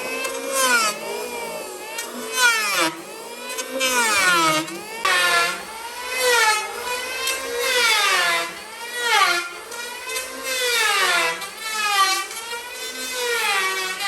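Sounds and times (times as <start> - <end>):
power tool motor whining: 0.0 - 14.0.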